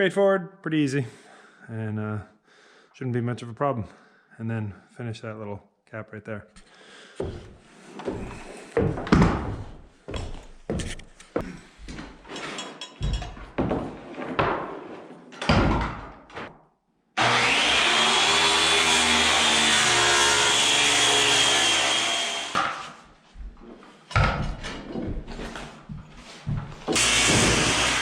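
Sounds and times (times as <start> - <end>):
power saw whining: 17.2 - 22.8, 27.0 - 28.0
knocks of wood and tools: 22.5 - 23.0, 24.1 - 25.6.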